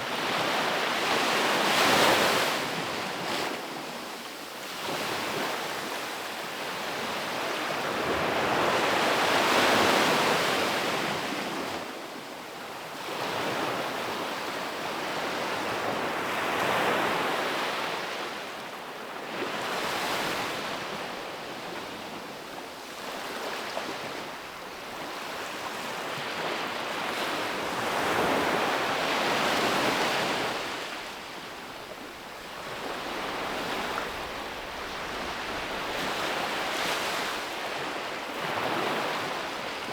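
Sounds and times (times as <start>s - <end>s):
ocean waves breaking: 26.6s - 39.7s.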